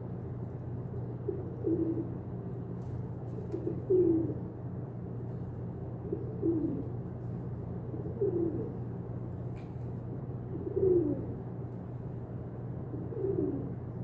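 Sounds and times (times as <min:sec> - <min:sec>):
steady low hum: 0:00.0 - 0:14.0
pigeon cooing: 0:01.2 - 0:02.3, 0:03.3 - 0:04.5, 0:06.0 - 0:07.0, 0:07.8 - 0:08.9, 0:10.4 - 0:11.4, 0:12.8 - 0:13.9.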